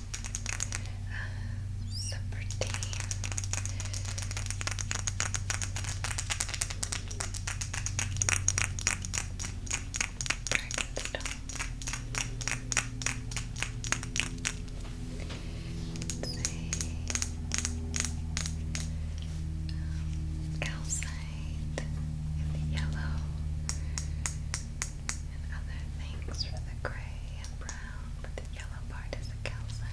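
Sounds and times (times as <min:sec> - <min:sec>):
rapid tapping on crystal stones: 0:00.0 - 0:00.9, 0:02.5 - 0:14.7, 0:16.0 - 0:18.9, 0:23.6 - 0:25.3
low steady hum: 0:00.0 - 0:29.9.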